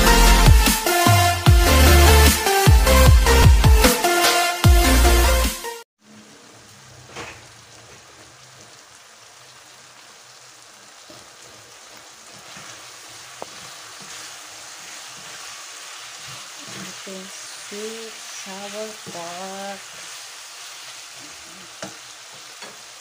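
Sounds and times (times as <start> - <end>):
pork sizzling in a pan: 6.0 - 23.0.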